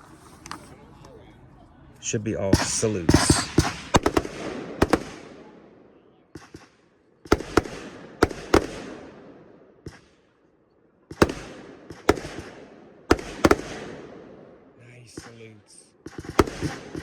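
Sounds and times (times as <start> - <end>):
firework bangs with rolling echo: 2.5 - 10.3, 11.1 - 15.4, 16.0 - 17.0.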